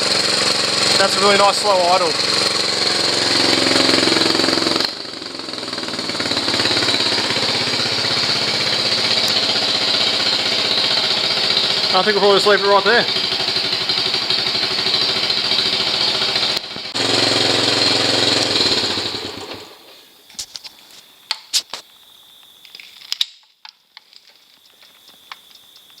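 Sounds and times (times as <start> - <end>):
motorcycle engine idling: 0.0 - 19.9.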